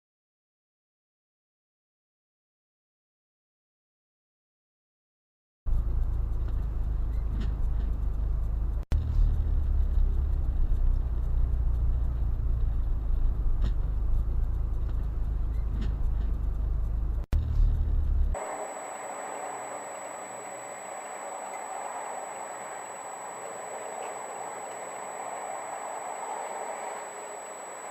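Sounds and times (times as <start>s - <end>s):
vehicle rumble on road: 5.7s - 18.7s.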